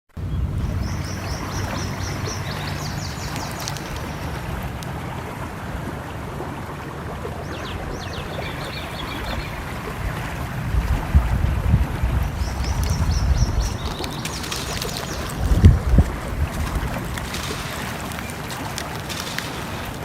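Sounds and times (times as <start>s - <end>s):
stream flowing: 0.2s - 20.0s
small bird chirping: 0.8s - 4.4s, 12.4s - 15.8s.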